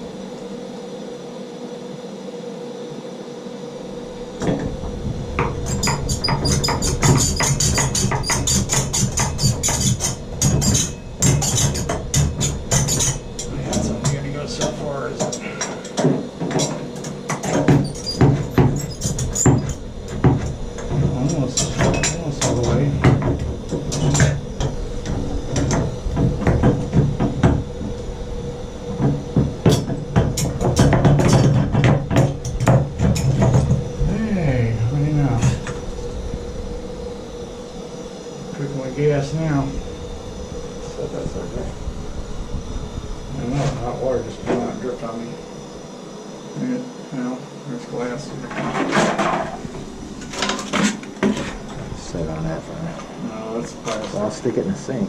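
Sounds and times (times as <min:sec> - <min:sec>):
low steady hum: 0:00.0 - 0:55.0
steady hiss: 0:00.0 - 0:55.0
sharp knocking and clattering: 0:04.4 - 0:28.0, 0:28.9 - 0:33.9, 0:48.5 - 0:51.8.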